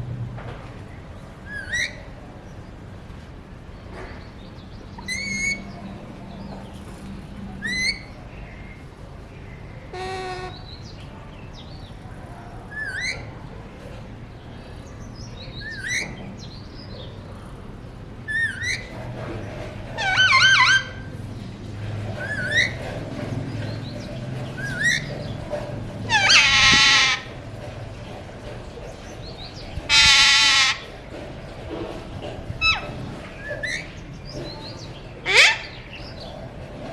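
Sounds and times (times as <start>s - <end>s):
parakeet harsh calls: 20.0s - 21.1s, 22.2s - 22.8s, 24.6s - 25.3s, 26.1s - 27.4s, 29.6s - 31.0s, 32.6s - 33.0s, 35.2s - 36.1s.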